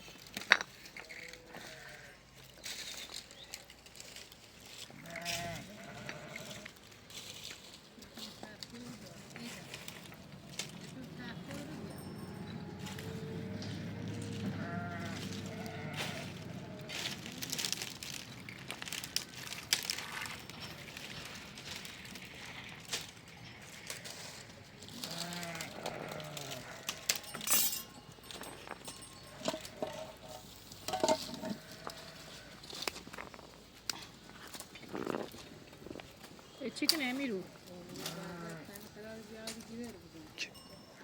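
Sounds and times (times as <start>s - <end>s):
sheep bleating: 1.2s - 2.2s, 5.0s - 6.7s, 8.9s - 17.7s, 23.5s - 27.2s, 31.4s - 32.6s, 37.9s - 39.0s.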